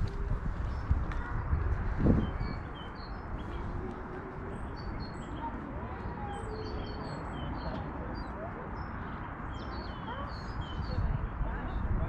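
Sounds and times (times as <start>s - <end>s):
outdoor background noise: 0.0s - 12.0s
small songbirds chirping: 1.8s - 11.9s.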